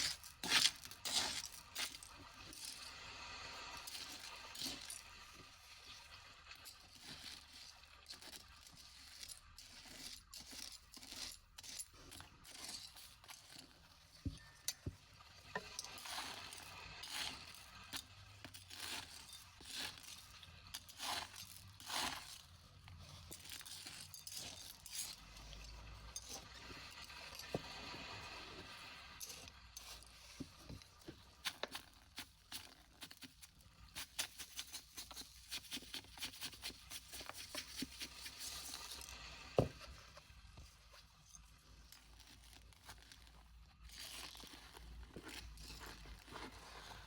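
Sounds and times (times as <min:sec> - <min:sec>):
hands scraping and rustling litter: 0:15.6 - 0:40.2, 0:41.9 - 0:47.0.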